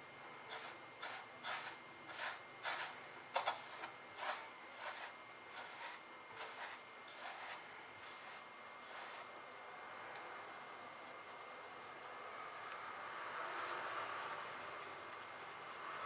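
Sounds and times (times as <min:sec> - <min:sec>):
paintbrush strokes scratching: 0:00.5 - 0:09.3.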